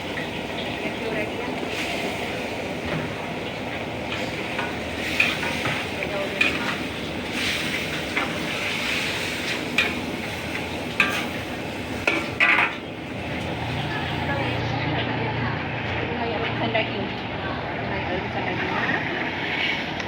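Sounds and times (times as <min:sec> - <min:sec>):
meat sizzling in a pot: 0:00.0 - 0:14.6.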